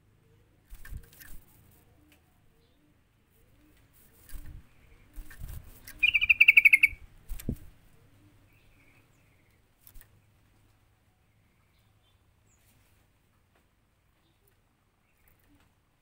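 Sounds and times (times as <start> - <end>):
bulbul chattering call: 5.9 - 7.0.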